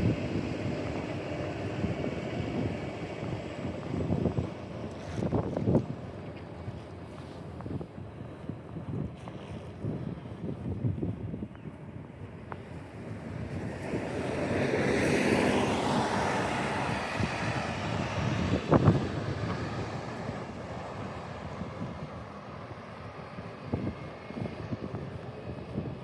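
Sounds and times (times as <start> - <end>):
car passing on snowy street: 0.0 - 5.4, 12.7 - 23.6.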